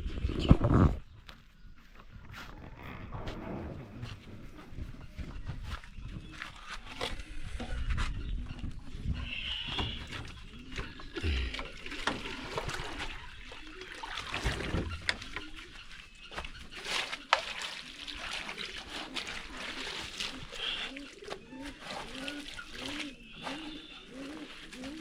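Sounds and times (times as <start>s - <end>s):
water splashing and sloshing: 3.2s - 25.0s.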